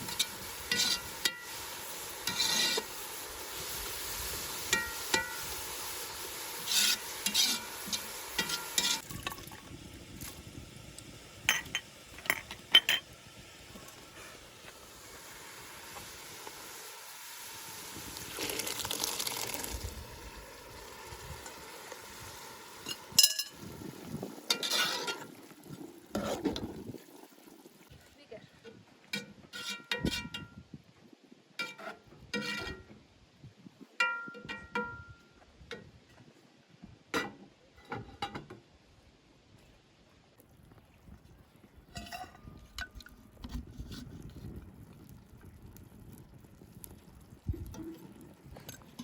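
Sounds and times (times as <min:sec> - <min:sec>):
utensil scraping in a pan: 0:00.0 - 0:09.1, 0:24.4 - 0:26.7, 0:29.2 - 0:30.5, 0:31.6 - 0:32.9
frying sizzle: 0:00.0 - 0:27.9.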